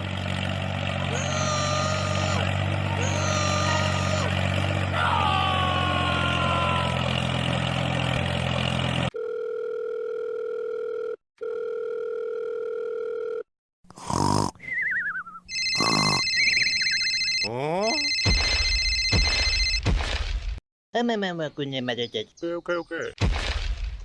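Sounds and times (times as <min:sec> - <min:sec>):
steady electronic dial tone: 0:09.2 - 0:13.5, 0:15.5 - 0:19.8
electronic beeps and chirps: 0:14.7 - 0:19.8.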